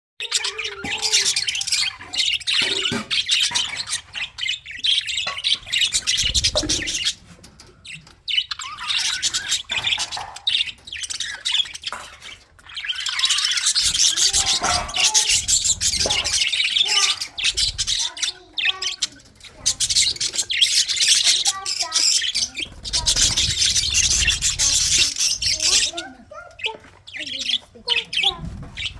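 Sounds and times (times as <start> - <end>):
budgerigars chirping and chattering: 0.2 - 28.9.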